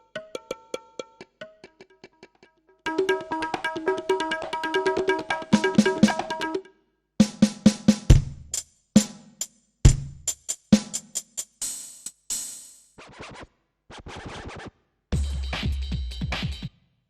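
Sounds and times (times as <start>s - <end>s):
deep kick drum hits: 8.1s - 8.5s.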